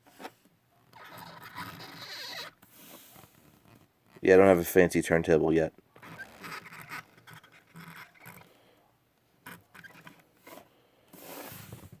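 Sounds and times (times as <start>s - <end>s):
toy car handling noises: 9.4s - 12.0s.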